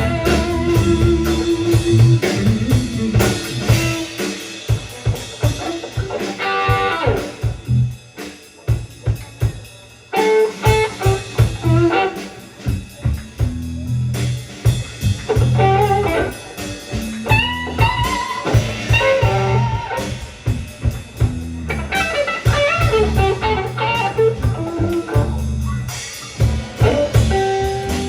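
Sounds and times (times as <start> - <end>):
rock band playing instrumental: 0.0 - 28.0
guitar phrase sliding down: 17.6 - 20.2.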